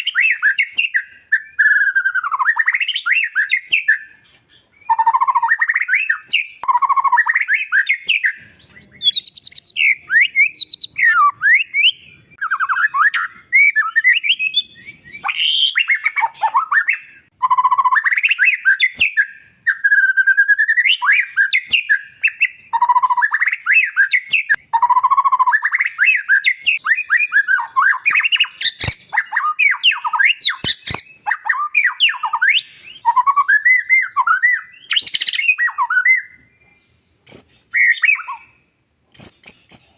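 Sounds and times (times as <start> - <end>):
bird singing whistled phrases: 0.0 - 39.9
sharp clicks: 28.6 - 29.1, 30.5 - 31.1.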